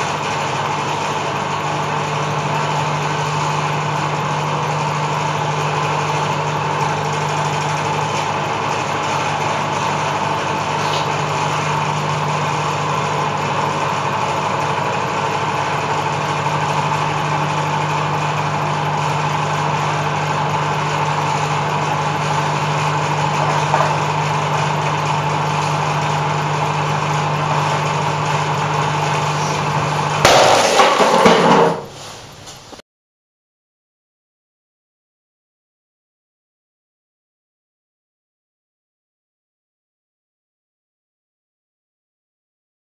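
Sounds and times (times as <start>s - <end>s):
microwave oven humming: 0.0s - 30.4s
sudden loud burst of noise: 23.4s - 32.0s.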